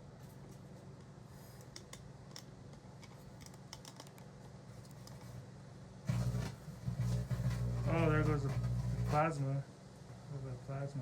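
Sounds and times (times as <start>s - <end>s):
microwave oven humming: 5.5s - 11.0s.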